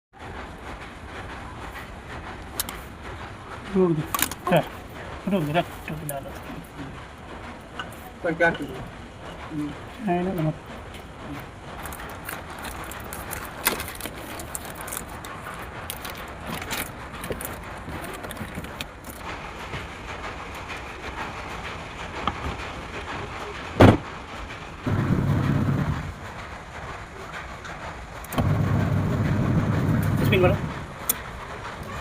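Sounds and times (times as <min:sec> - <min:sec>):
washing machine running: 0:00.1 - 0:32.0
loud knock: 0:23.8 - 0:24.1.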